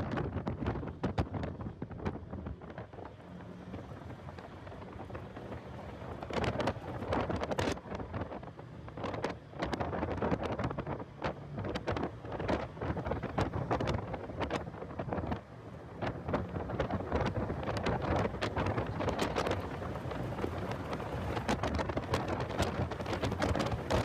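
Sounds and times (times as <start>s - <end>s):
car driving at speed: 0.0s - 24.0s
wind buffeting microphone: 0.0s - 24.0s.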